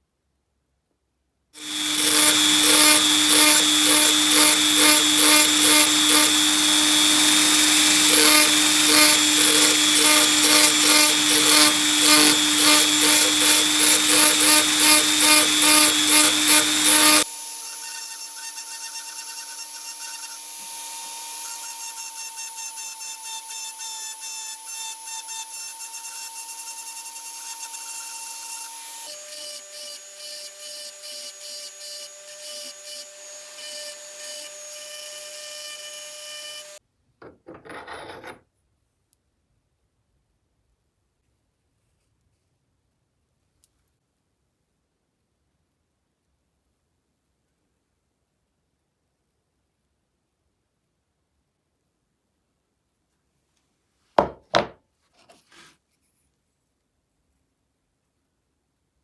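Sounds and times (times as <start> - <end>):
power tool running with pulsing: 1.6 - 36.8.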